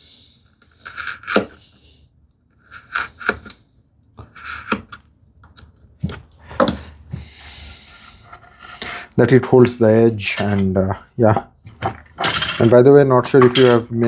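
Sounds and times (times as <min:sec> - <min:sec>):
chisel paring wood: 0:00.8 - 0:01.6, 0:02.6 - 0:03.6, 0:04.2 - 0:07.0.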